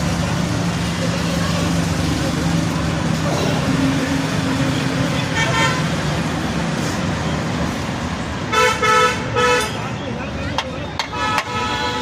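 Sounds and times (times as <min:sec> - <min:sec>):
road traffic passing: 0:00.0 - 0:12.0
vehicle horn toot: 0:11.1 - 0:12.0.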